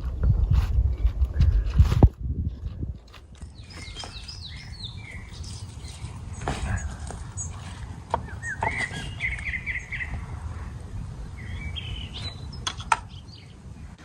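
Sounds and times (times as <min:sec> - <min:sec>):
small birds chirping: 0:03.1 - 0:14.0.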